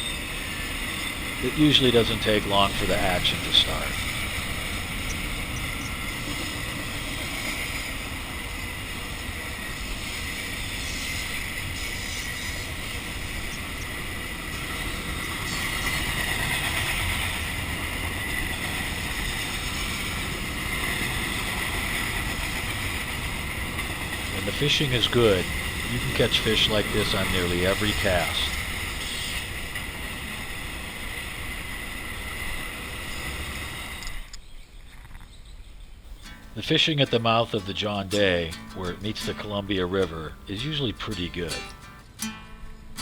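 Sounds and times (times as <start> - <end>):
wind: 0.0 - 43.0
moving water: 1.2 - 6.5, 24.0 - 29.7.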